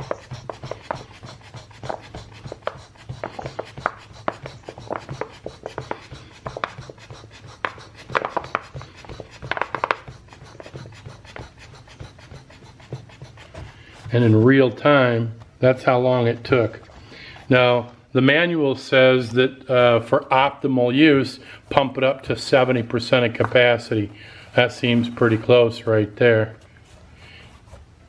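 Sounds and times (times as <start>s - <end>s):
hand pump air strokes: 0.0s - 18.0s.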